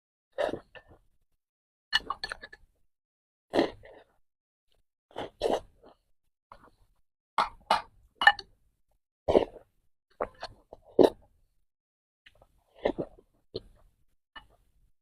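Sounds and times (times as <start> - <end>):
wet chewing and swallowing: 0.4 - 1.1, 3.5 - 6.9, 9.3 - 11.4, 12.3 - 14.7.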